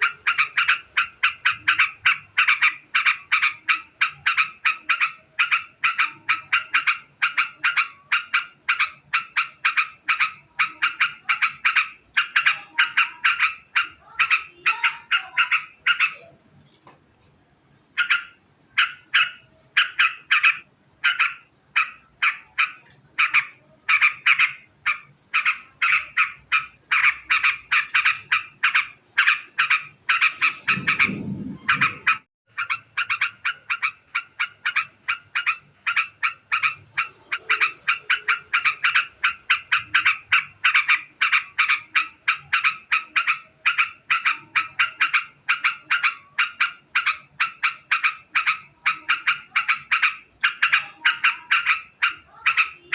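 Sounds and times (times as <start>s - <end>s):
bird chattering fast notes: 0.0s - 16.3s, 18.0s - 52.9s
low rumble: 30.4s - 32.2s.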